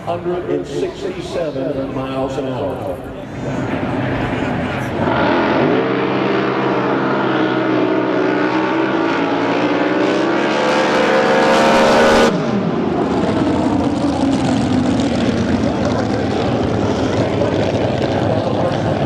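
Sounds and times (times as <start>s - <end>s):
drag boat engine running: 13.1s - 19.0s.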